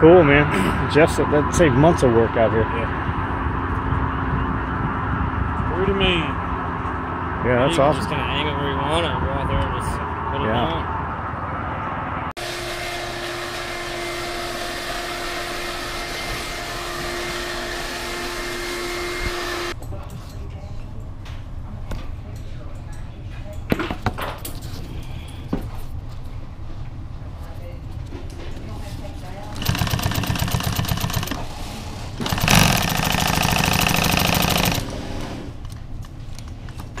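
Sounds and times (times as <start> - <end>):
wood chipper running: 12.4 - 19.8, 29.6 - 35.5
wood chipper clattering: 29.6 - 31.5, 32.2 - 35.0.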